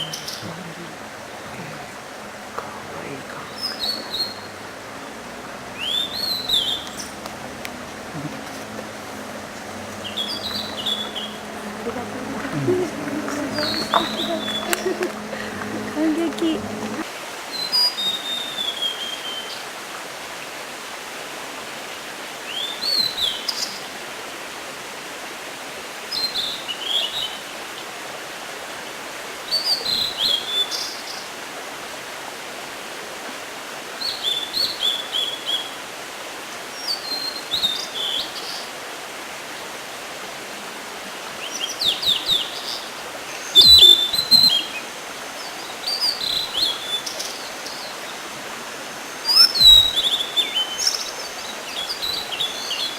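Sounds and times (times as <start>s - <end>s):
bird singing whistled notes: 3.5s - 4.6s, 5.8s - 7.2s, 9.9s - 11.8s, 43.4s - 44.8s, 49.2s - 52.9s.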